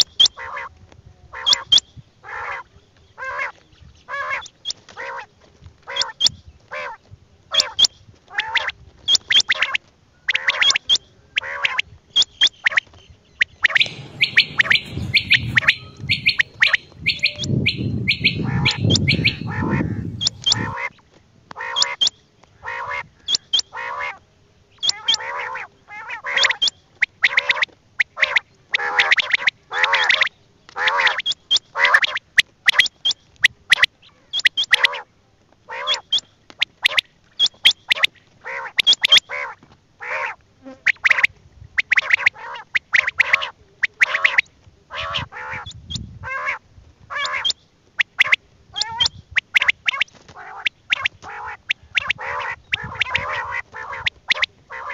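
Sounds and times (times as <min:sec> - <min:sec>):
quail calling: 0:00.0 - 0:21.0, 0:21.6 - 0:24.2, 0:24.8 - 0:35.1, 0:35.7 - 0:54.9
rough rumbling noise: 0:13.7 - 0:20.8.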